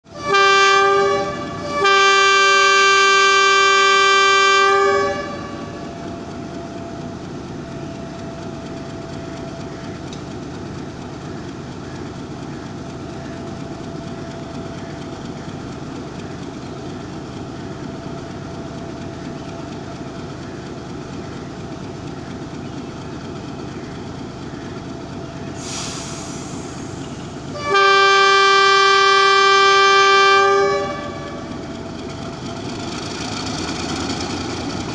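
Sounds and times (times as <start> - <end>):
train rumbling: 0.0 - 34.9
train horn blasts: 0.1 - 6.1, 27.5 - 31.8.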